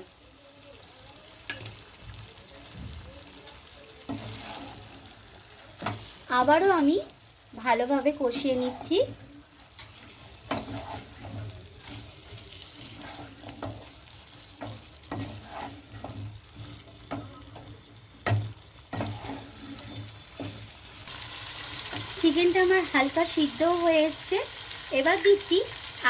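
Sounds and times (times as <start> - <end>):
faint sizzle: 0.0 - 26.0
utensil scraping and knocking pan: 4.1 - 5.1, 5.7 - 6.3, 9.8 - 21.0.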